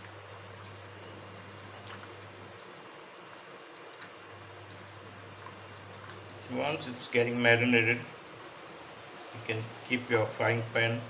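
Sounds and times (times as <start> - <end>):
wet squishing of fish mixed by hand: 0.0 - 8.7
low hiss and hum: 0.0 - 11.0.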